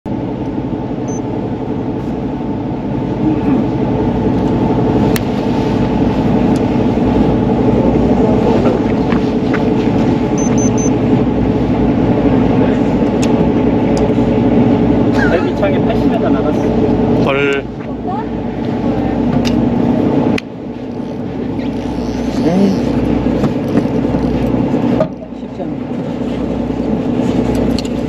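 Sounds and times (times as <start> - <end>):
boat engine humming: 0.1 - 28.0
short high beeps: 10.4 - 10.9.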